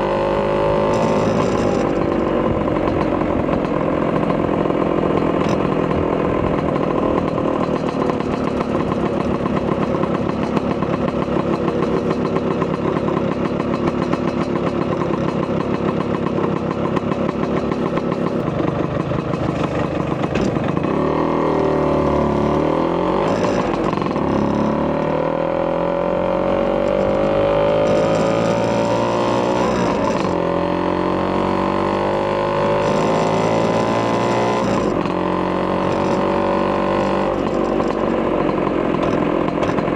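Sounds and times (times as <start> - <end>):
scooter engine accelerating: 0.0 - 39.9.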